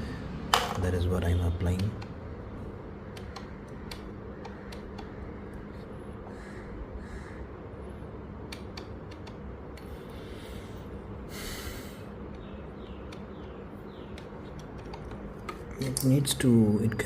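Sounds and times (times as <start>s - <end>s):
person breathing: 0.0s - 0.5s, 9.8s - 12.2s
steady low hum: 0.0s - 17.0s.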